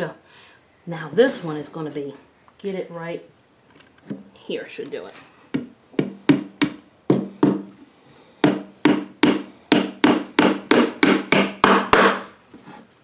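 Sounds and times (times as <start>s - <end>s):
hammer striking nail into wood: 5.6s - 7.7s, 8.4s - 12.3s.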